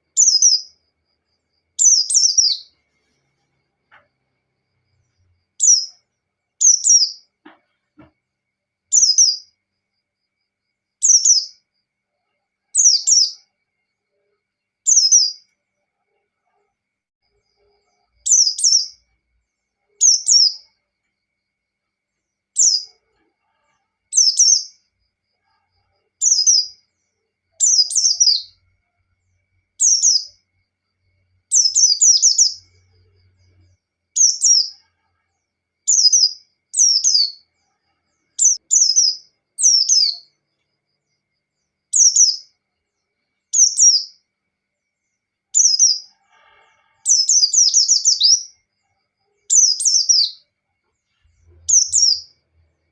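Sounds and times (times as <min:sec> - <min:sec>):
bird giving high chirps: 0:51.7 - 0:52.3.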